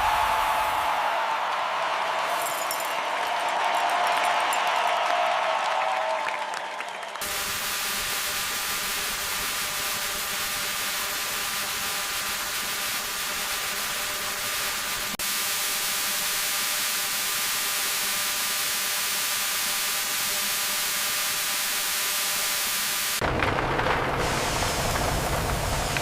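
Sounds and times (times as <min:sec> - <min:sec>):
steady hiss: 0:07.2 - 0:23.3, 0:23.9 - 0:26.0
deep rumbling noise: 0:23.2 - 0:26.0.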